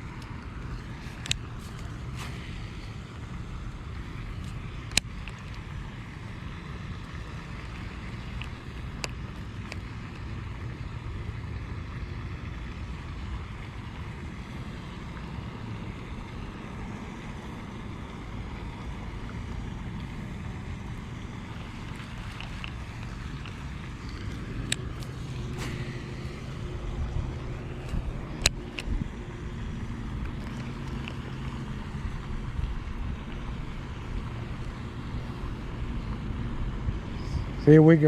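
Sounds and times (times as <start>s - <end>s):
wind rumble on microphone: 18.2s - 38.0s.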